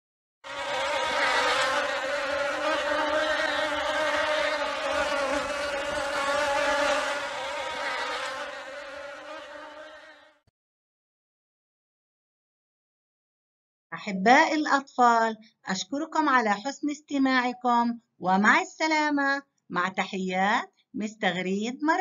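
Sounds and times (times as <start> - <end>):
bee buzzing: 0.4 - 10.4.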